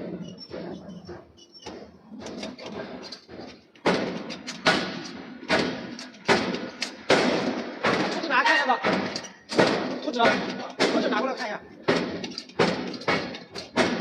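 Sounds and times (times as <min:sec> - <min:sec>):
heavy ringing hammer strikes: 0:03.8 - 0:14.0.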